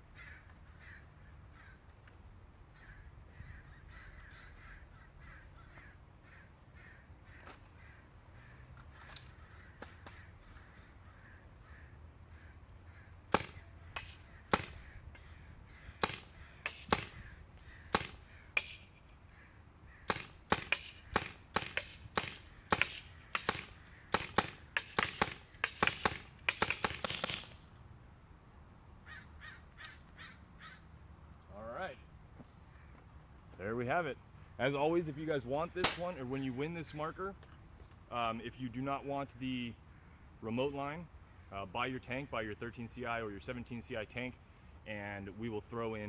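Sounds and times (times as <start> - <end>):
suppressed paintball marker shots: 13.3 - 15.3, 16.0 - 17.2, 17.9 - 19.0, 20.1 - 27.7.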